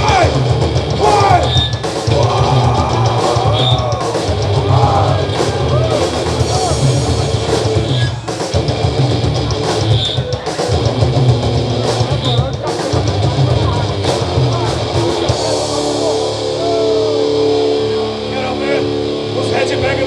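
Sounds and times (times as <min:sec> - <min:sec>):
bass guitar: 0:00.0 - 0:20.0
distorted electric guitar: 0:00.0 - 0:20.0
pounding drum kit: 0:00.0 - 0:20.0
crashing cymbals: 0:15.0 - 0:19.7.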